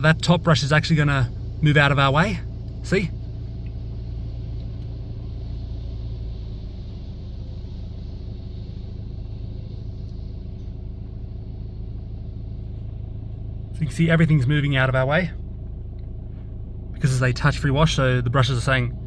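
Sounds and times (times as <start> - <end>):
car idling: 0.0 - 19.0
car wash machinery running: 0.0 - 19.0.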